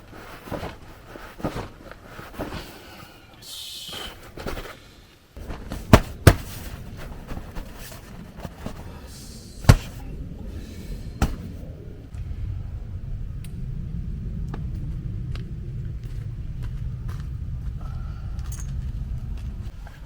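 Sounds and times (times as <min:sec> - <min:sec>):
low steady rumble: 0:05.2 - 0:20.0.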